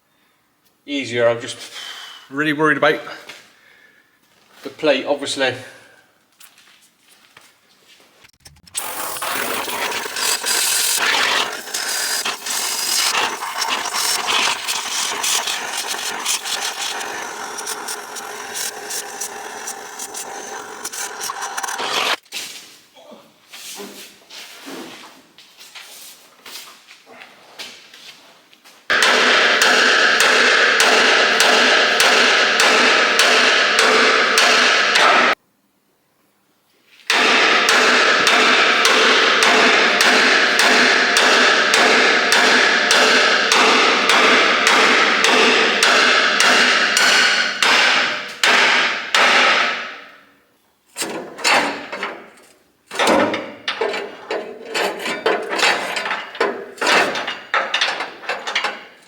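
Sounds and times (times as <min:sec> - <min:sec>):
hammer striking steel tubes: 0:08.8 - 0:22.2, 0:28.9 - 0:35.4, 0:37.1 - 0:50.2, 0:52.9 - 0:59.0.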